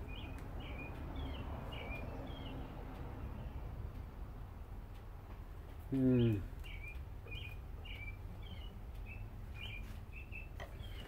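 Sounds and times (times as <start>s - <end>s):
small bird chirping: 0.0s - 3.6s, 5.8s - 11.0s
outdoor background noise: 0.0s - 11.0s.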